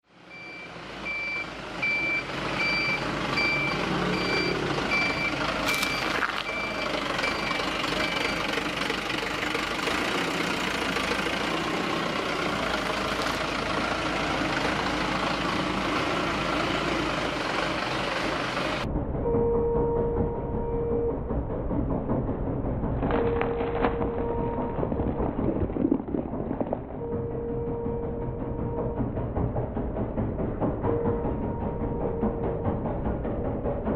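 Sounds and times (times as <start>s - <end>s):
truck engine running: 0.1s - 33.9s
truck reversing alarm beeps: 0.2s - 8.8s, 19.2s - 21.4s, 23.2s - 25.2s, 26.9s - 29.8s, 30.8s - 33.6s.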